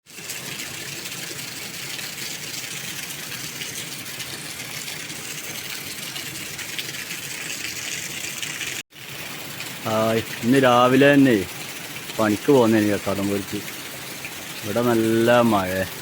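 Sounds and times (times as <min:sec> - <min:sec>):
heavy rain hissing: 0:09.1 - 0:16.0.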